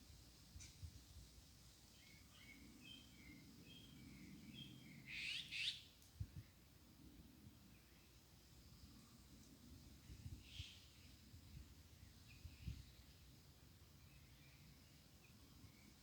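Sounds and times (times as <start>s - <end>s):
nuthatch calling: 4.6s - 5.8s.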